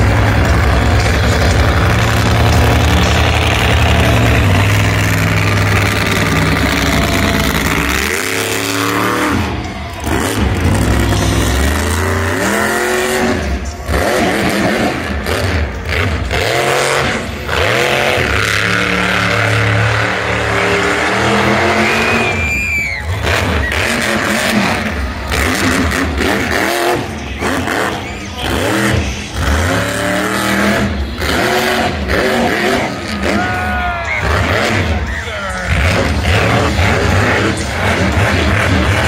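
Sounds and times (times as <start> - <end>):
truck engine revving: 0.0 - 39.0
high squeals: 17.8 - 31.3.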